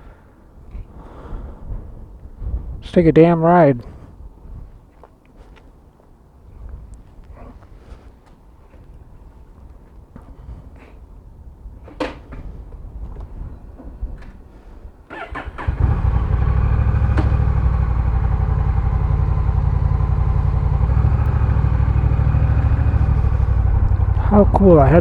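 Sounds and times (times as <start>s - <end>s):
motorcycle engine starting and idling: 15.1s - 25.0s
faint clicks: 23.8s - 24.2s.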